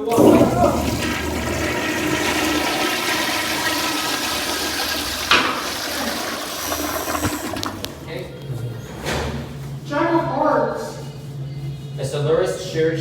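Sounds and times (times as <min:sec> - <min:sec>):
toilets flushing: 0:00.0 - 0:09.6.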